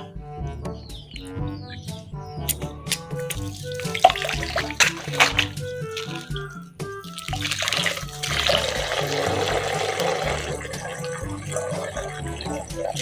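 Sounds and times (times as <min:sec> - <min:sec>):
water running: 0:03.1 - 0:13.0.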